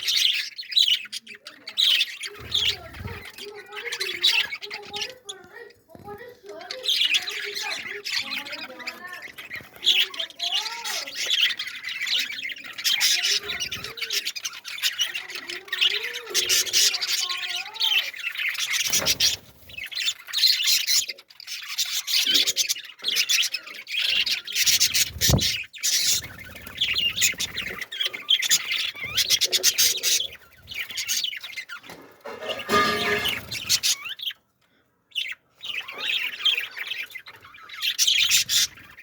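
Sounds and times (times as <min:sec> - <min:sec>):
small birds chirping: 0:00.0 - 0:39.0
low wavering squawk calls: 0:32.3 - 0:34.4.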